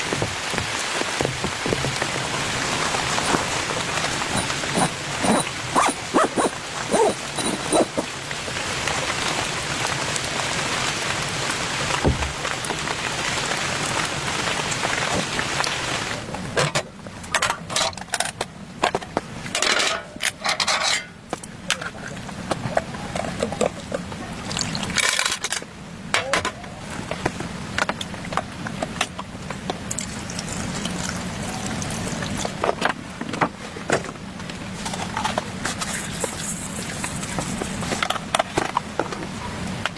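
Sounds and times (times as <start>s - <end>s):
heavy rain falling: 0.0s - 16.6s
short irregular noises: 3.1s - 8.2s.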